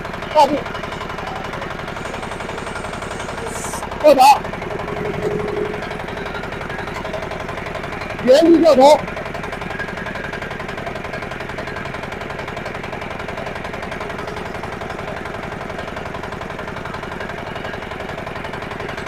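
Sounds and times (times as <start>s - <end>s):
diesel tractor engine clattering: 0.0s - 19.0s.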